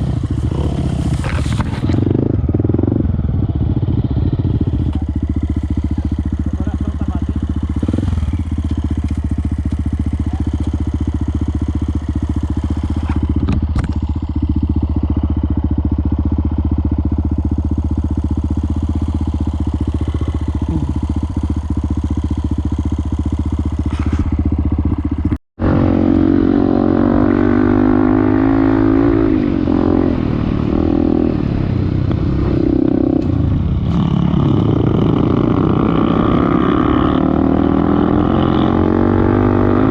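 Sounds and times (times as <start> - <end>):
engine revving: 0.0 - 3.0, 25.6 - 39.9
motorcycle engine running: 0.0 - 39.9.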